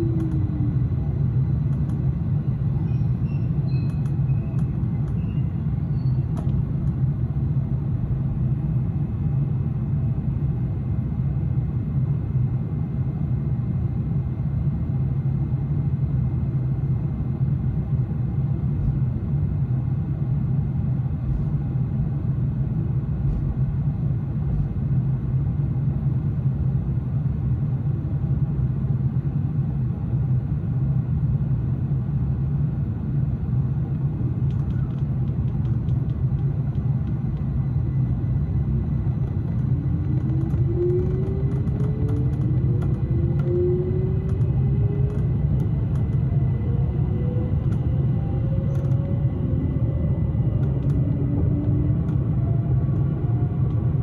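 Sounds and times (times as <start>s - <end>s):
train rumbling: 0.0s - 54.0s
click: 0.2s - 0.4s, 1.7s - 2.0s, 3.9s - 5.2s, 6.3s - 7.0s, 34.4s - 37.5s, 44.2s - 46.3s, 47.6s - 47.9s, 48.7s - 49.1s, 50.6s - 52.2s.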